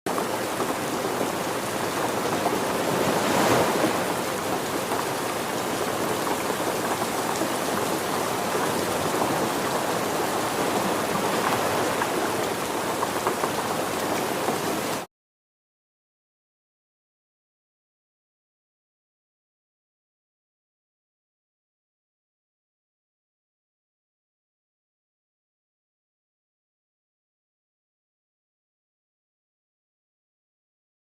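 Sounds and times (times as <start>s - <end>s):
rushing water: 0.1s - 15.1s.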